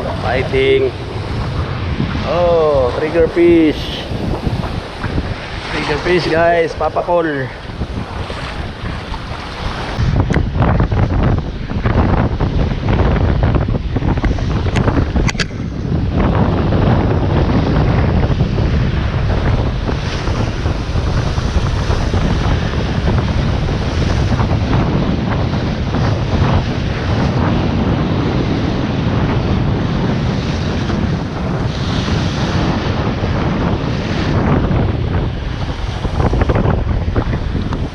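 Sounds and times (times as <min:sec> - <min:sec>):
surf washing onto shore: 0:00.0 - 0:37.9
wind buffeting microphone: 0:00.0 - 0:37.9.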